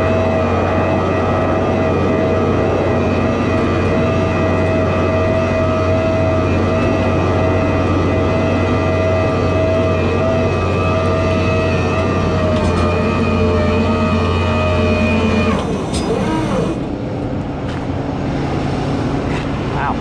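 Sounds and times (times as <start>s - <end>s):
diesel engine humming: 0.0s - 20.0s
hydraulic winch whining: 4.1s - 16.9s.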